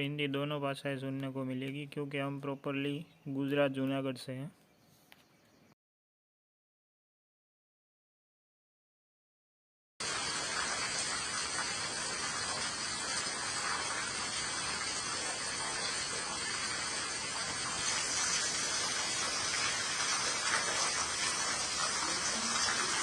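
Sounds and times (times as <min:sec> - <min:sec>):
steady rain falling: 0:10.0 - 0:23.0.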